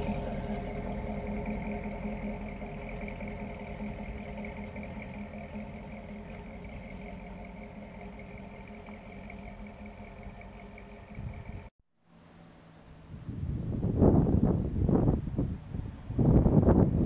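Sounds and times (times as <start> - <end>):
car engine driving away: 0.0 - 11.7.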